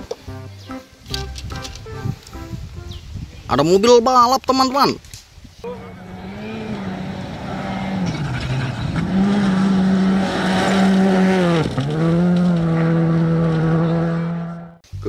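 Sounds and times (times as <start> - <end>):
rally car engine at high revs: 5.8 - 14.8.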